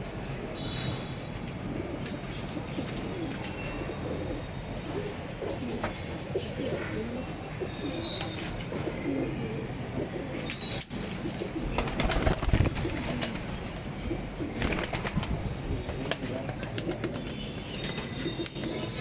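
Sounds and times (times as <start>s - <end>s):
pigeons cooing: 1.6s - 19.0s
wings flapping: 10.9s - 18.2s.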